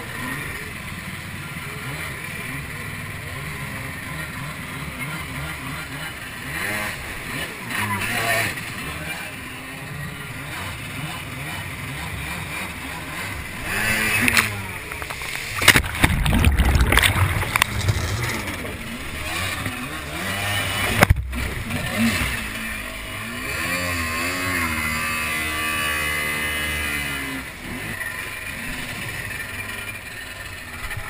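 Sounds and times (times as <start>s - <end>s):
jet ski engine revving: 0.0s - 31.0s
rough splashing and knocking: 15.0s - 18.5s.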